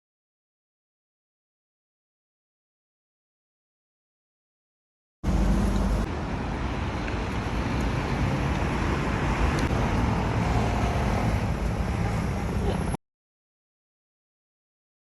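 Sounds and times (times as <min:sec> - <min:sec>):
passing cars rumble: 0:05.2 - 0:13.0.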